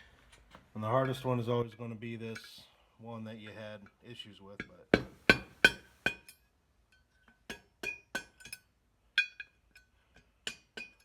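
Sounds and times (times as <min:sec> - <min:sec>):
hammer tapping metal punch: 0:04.6 - 0:06.4.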